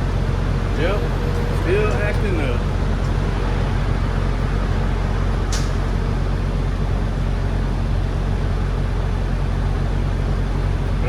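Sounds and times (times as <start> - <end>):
truck diesel engine humming: 0.0 - 11.0.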